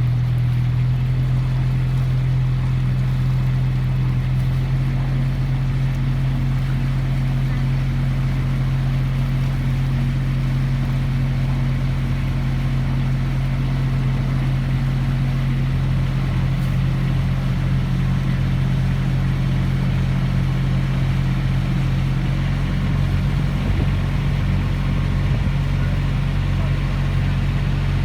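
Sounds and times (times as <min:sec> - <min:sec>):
engine humming steadily: 0:00.0 - 0:28.0
low regular throbbing: 0:00.0 - 0:28.0.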